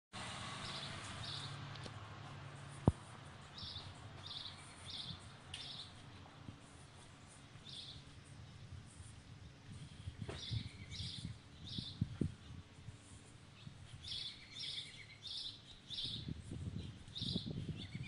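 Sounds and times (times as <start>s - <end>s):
bird chirping: 0.6s - 1.6s, 3.4s - 8.6s, 9.4s - 12.6s, 13.5s - 18.0s
low background hum: 0.8s - 18.0s.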